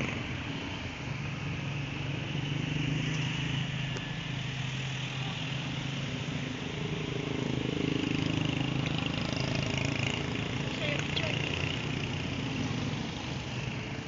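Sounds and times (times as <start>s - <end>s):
vehicle engine running: 4.5s - 14.0s.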